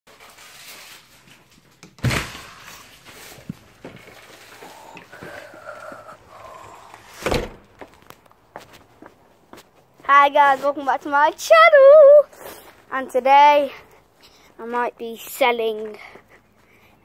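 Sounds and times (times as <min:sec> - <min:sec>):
rustling: 0:00.1 - 0:10.9.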